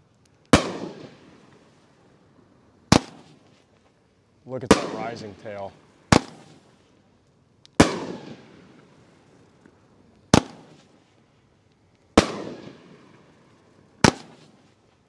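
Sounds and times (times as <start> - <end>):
firework bangs: 0.5 - 1.7, 2.9 - 3.5, 4.6 - 6.8, 7.8 - 9.1, 10.3 - 11.0, 12.1 - 13.4, 14.0 - 14.7.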